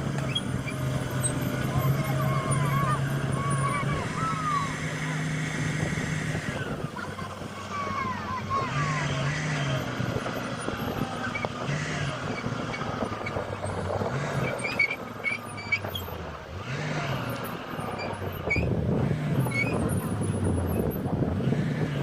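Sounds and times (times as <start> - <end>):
heavy diesel excavator engines: 0.0 - 22.0
high squeaks and knocks: 0.1 - 1.7.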